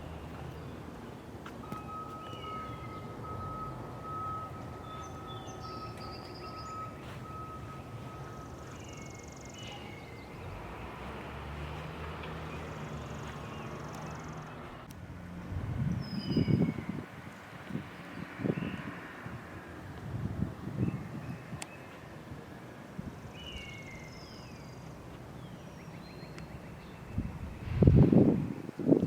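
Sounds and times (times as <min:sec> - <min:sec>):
bird chirps: 0:00.0 - 0:10.6, 0:16.0 - 0:17.0
distant traffic rumble: 0:00.0 - 0:29.0.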